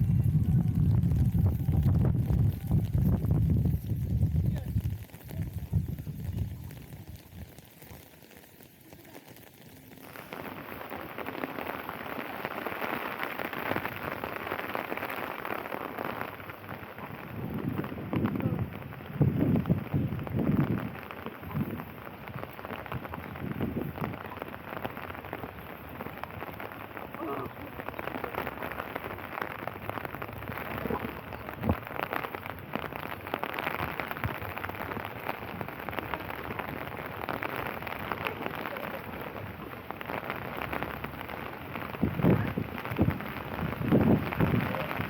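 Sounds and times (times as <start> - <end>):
raindrop taps: 0.0 - 10.8, 15.4 - 45.0
steady rain falling: 0.0 - 45.0.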